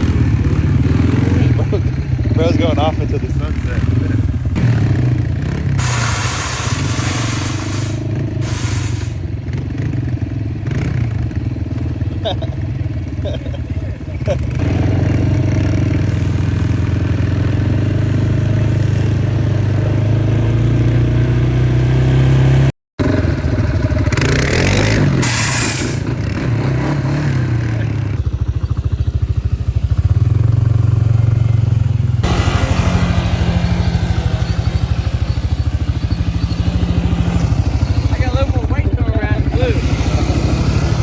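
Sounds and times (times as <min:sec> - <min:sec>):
atv engines revving: 0:00.0 - 0:41.0
rushing noise: 0:05.6 - 0:09.2.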